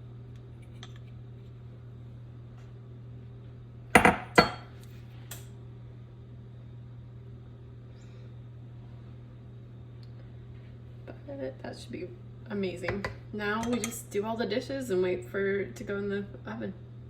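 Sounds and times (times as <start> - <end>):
steady low hum: 0.0 - 17.0
kitchenware knocking on counter: 4.0 - 4.6.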